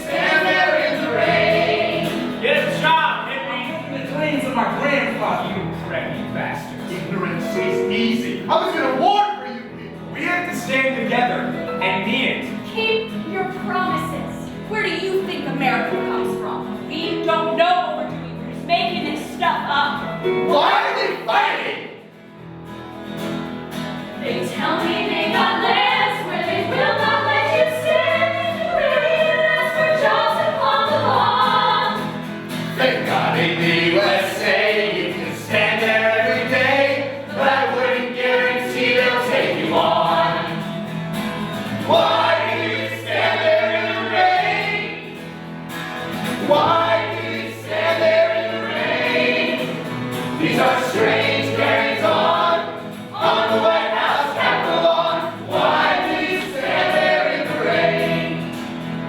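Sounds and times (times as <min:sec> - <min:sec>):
choir singing: 0:00.0 - 0:02.8, 0:20.2 - 0:22.2, 0:24.1 - 0:59.0.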